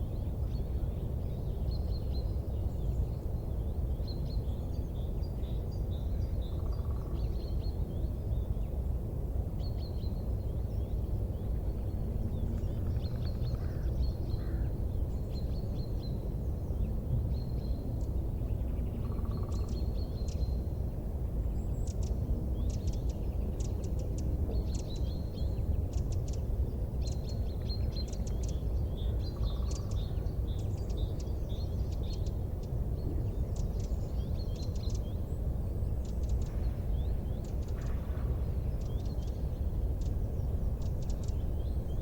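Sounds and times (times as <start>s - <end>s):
steady low rumble: 5.8s - 42.0s
small birds chirping: 9.6s - 42.0s.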